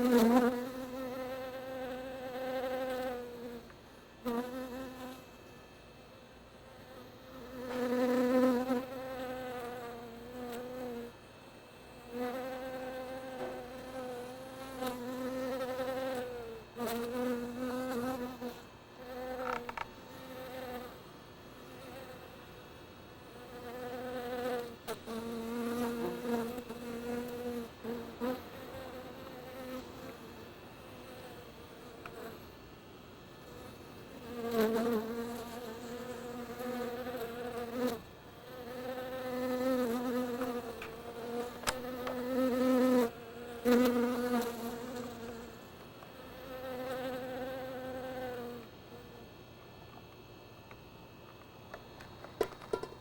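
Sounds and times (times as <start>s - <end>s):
sharp clicks: 41.6s - 41.9s.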